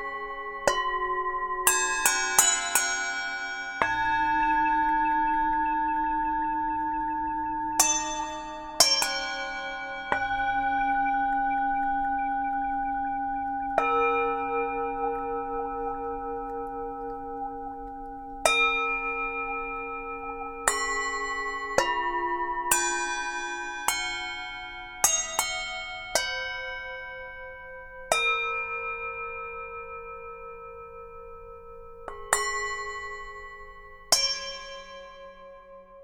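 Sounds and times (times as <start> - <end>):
singing bowls ringing: 0.0 - 35.8.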